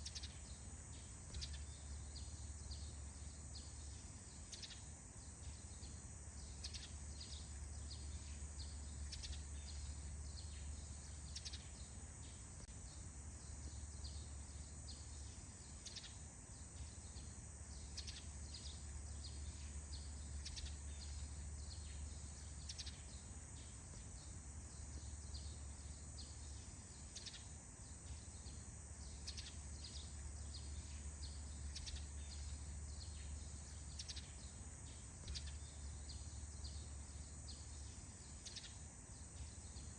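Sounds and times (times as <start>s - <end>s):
bird chirps: 0.0s - 39.9s
high-pitched insect trill: 0.0s - 39.9s.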